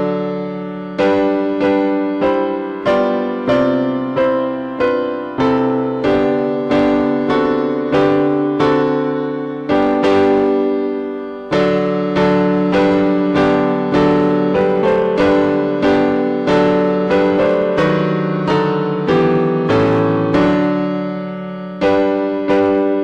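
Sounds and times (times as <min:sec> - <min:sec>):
piano playing slow chords: 0:00.0 - 0:23.0.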